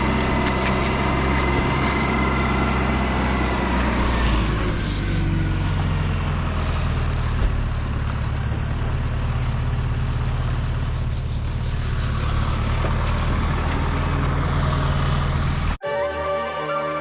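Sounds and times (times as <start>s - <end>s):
truck engine running: 0.0s - 15.8s
electronic beeper pulsing: 7.0s - 11.5s, 15.0s - 15.6s.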